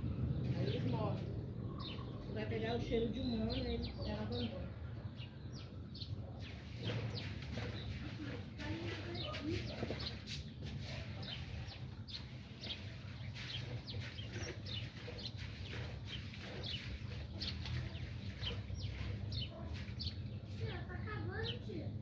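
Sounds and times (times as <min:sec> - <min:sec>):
low calls: 0:00.0 - 0:08.0
chicks peeping: 0:10.8 - 0:20.8.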